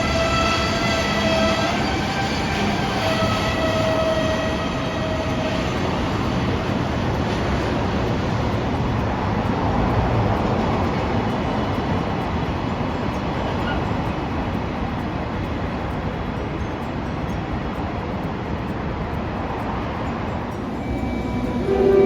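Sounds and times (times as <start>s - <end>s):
train motor whine: 0.0s - 13.8s, 20.5s - 22.0s
electric train passing: 0.0s - 22.0s.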